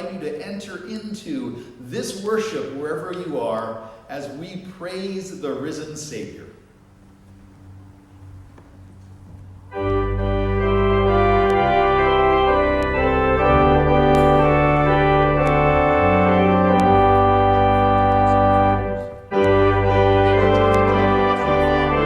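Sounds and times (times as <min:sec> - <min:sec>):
organ playing sustained chords: 0:05.3 - 0:22.0.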